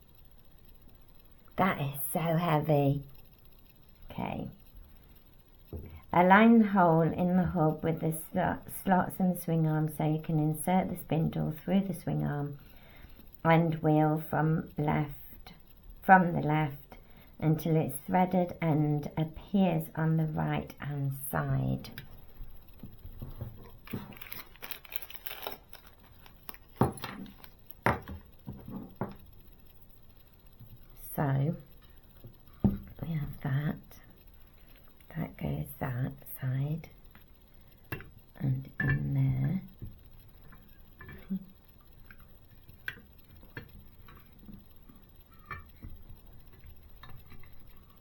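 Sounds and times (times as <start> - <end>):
rustling and clicking of small parts: 0.0 - 6.2, 7.0 - 48.0
small plastic parts clicking: 21.9 - 30.8.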